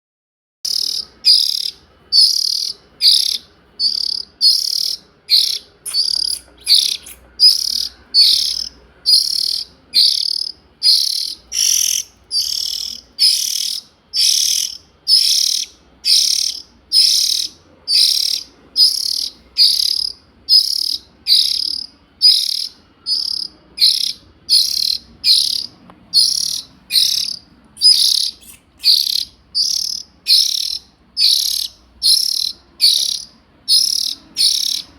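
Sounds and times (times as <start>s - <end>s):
bird giving harsh hissing call: 2.2s - 22.6s, 26.2s - 33.0s.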